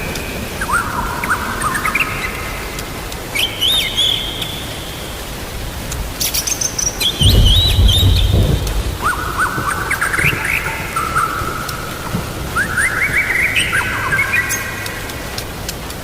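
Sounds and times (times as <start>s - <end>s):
rain hissing: 0.0s - 16.0s
bird singing whistled phrases: 3.3s - 5.1s, 6.2s - 11.9s, 12.5s - 14.9s
low rumble of thunder: 7.0s - 12.8s.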